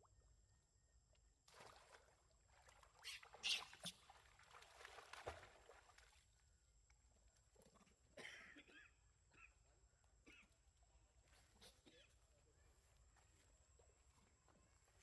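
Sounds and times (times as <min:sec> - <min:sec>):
pond water splashing: 0:01.4 - 0:06.6.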